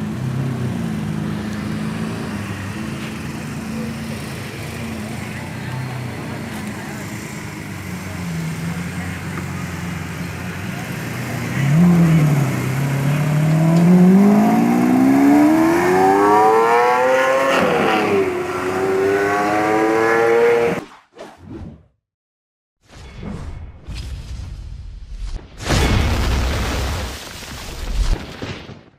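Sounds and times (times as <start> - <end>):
car engine accelerating hard: 0.0 - 20.8.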